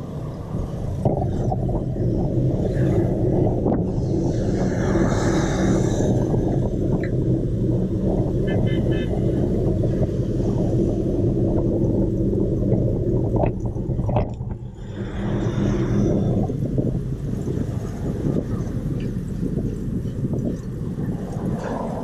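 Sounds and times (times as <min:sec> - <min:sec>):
traffic rumble: 0:00.0 - 0:22.0
vehicle horn beeps: 0:08.5 - 0:09.3.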